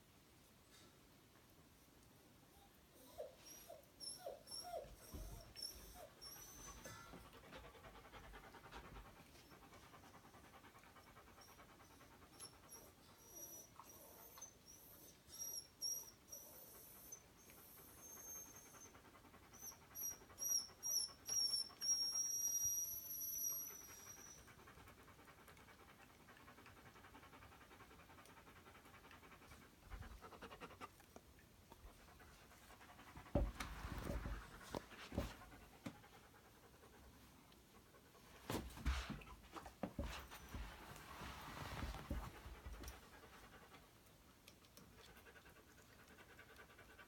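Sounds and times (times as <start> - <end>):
dog whining: 2.5 - 8.8, 10.6 - 24.8
dog panting: 4.6 - 14.5, 16.4 - 22.8, 23.4 - 47.0.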